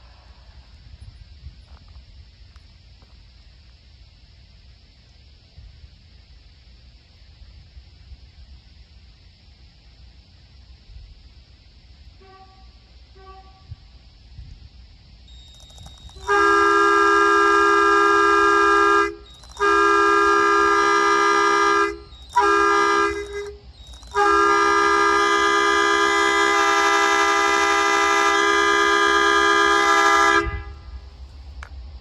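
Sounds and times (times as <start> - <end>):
locomotive air horn blasts: 12.2 - 13.8, 16.2 - 31.0.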